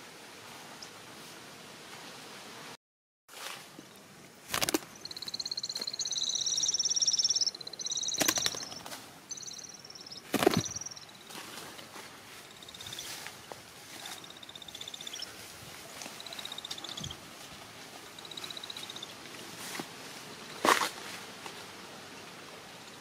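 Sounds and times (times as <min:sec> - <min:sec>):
nestling birds chirping: 0:03.9 - 0:19.5
sharp cracks: 0:04.5 - 0:05.0, 0:08.1 - 0:09.0, 0:10.2 - 0:10.9.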